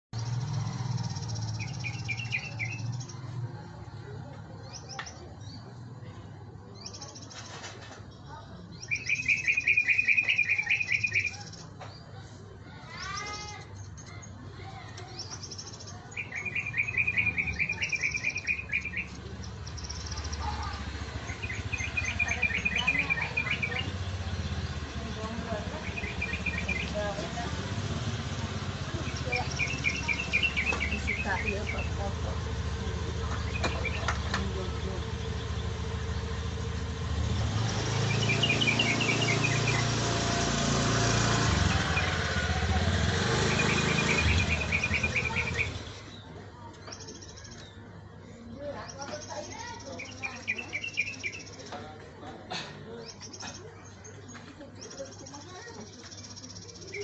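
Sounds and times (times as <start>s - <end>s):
bird chattering song: 0.2s - 3.4s, 6.8s - 52.2s, 53.0s - 57.0s
small engine running: 16.2s - 46.2s.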